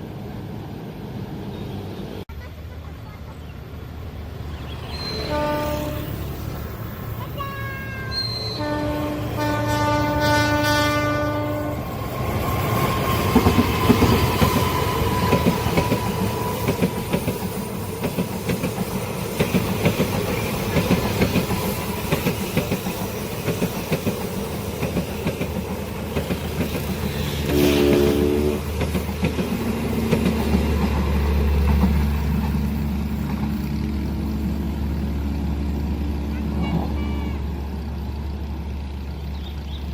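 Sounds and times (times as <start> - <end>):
train horn: 5.1 - 6.4, 7.4 - 12.0, 27.2 - 28.7, 36.2 - 37.7
train wheels clattering: 11.9 - 34.6.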